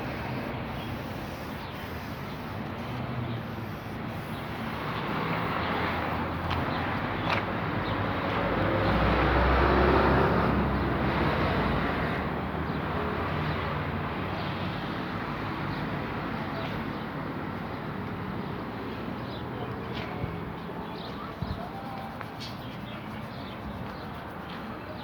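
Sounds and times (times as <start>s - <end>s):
vehicle passing: 0.0s - 12.2s
traffic hum: 0.0s - 25.0s.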